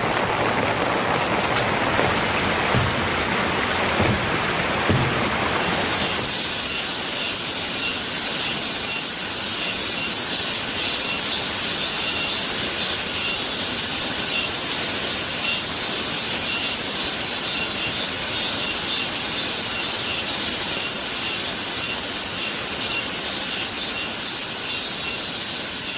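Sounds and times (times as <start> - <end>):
rain hissing: 0.0 - 25.9.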